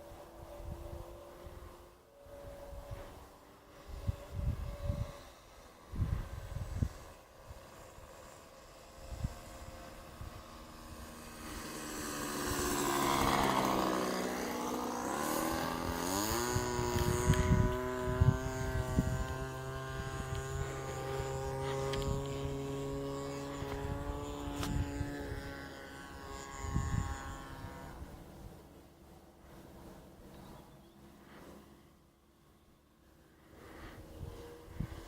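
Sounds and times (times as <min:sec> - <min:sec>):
model airplane engine whine: 0:00.0 - 0:35.0.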